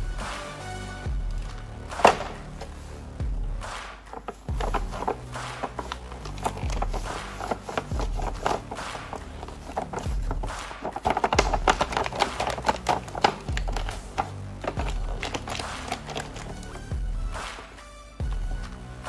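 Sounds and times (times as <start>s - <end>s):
music with deep bass beat: 0.0s - 19.0s
sharp clicks and ticks: 4.0s - 17.7s.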